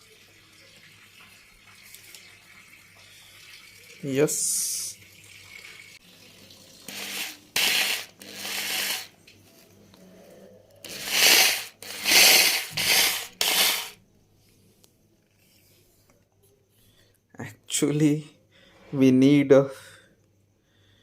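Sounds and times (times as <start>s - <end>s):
electric hammer drill bursts: 6.9s - 9.1s, 10.8s - 14.0s.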